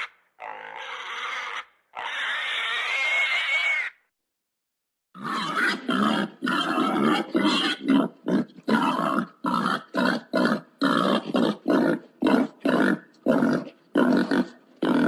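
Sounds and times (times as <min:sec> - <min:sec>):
pig grunting: 0:05.2 - 0:15.0.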